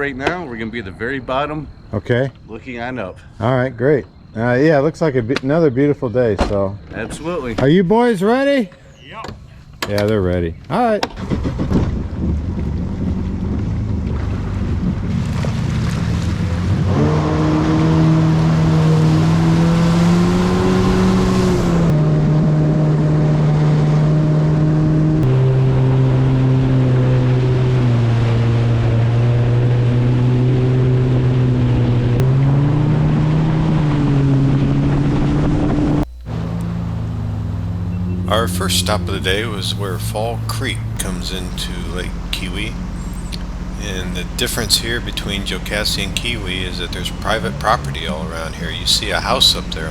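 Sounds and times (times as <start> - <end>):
jet ski engine at speed: 11.2 - 49.9.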